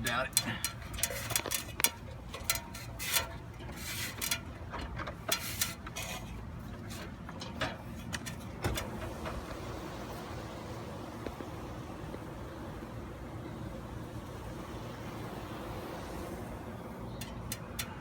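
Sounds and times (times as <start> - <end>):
handling knocks and scrapes: 0.6 - 9.7
faint steady rushing: 8.2 - 18.0.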